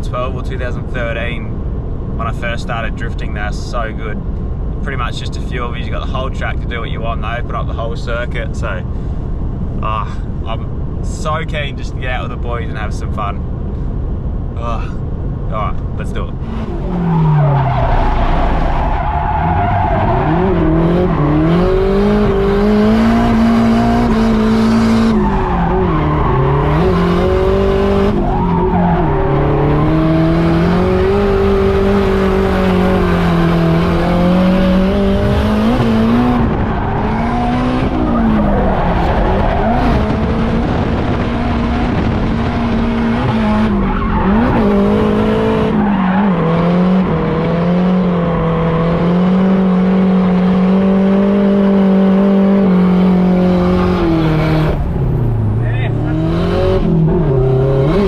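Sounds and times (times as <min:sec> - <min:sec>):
tyres skidding and squealing: 0:14.6 - 0:58.0
car engine revving high: 0:16.4 - 0:58.0.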